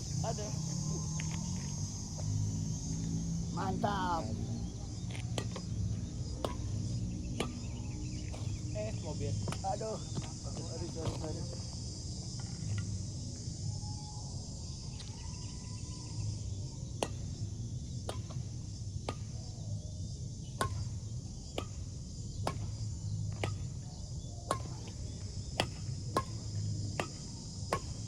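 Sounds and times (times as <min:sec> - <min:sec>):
insects chirring: 0:00.0 - 0:28.0
rackets hitting a shuttlecock: 0:05.3 - 0:08.6, 0:24.5 - 0:25.0, 0:25.6 - 0:28.0.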